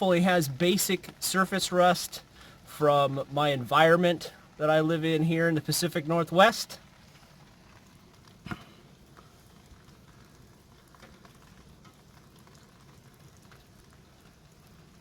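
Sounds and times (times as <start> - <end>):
heavy rain hissing: 0.0 - 10.8.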